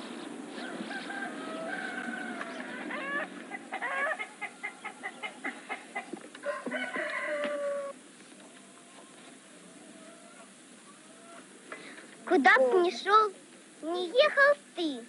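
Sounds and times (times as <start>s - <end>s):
chicken clucking: 0.6s - 11.5s
rooster crowing: 0.6s - 11.5s.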